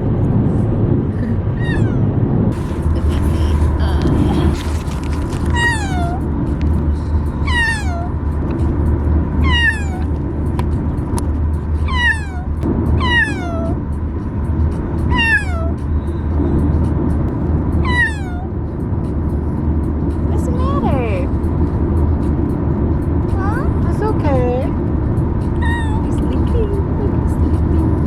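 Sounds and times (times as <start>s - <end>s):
car rumbling on the road: 0.0s - 28.0s
kitten meowing: 1.5s - 2.1s, 5.5s - 6.3s, 7.4s - 8.2s, 9.4s - 10.1s, 11.8s - 13.8s, 15.1s - 15.8s, 17.8s - 18.5s, 25.5s - 26.3s.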